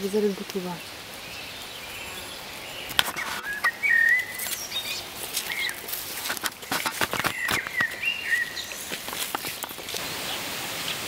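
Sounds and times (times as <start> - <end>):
birds chirping: 0.0 - 11.0
steady background hiss: 0.0 - 11.0
sharp clicks and knocks: 6.2 - 8.0.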